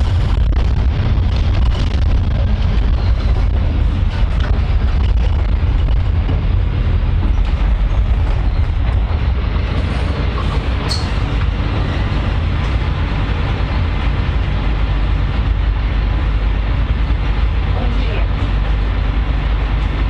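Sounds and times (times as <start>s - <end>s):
train rumbling on rails: 0.0s - 20.0s
high squeak: 10.8s - 11.2s.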